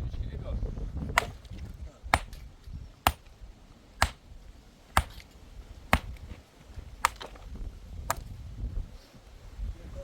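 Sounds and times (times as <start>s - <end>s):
hand tool striking: 4.0s - 4.2s, 4.9s - 5.3s, 5.9s - 6.2s.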